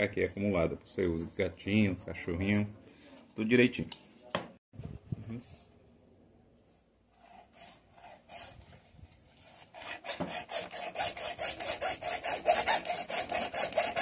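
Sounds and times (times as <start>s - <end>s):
hacksaw cutting plastic pipe: 9.6s - 14.0s.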